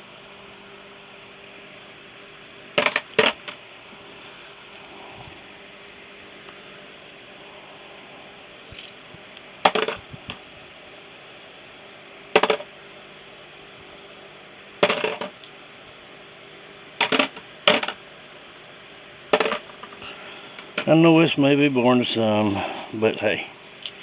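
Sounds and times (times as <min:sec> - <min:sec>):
metal tools clattering into tray: 0:04.1 - 0:05.3, 0:14.8 - 0:15.5, 0:22.4 - 0:23.2.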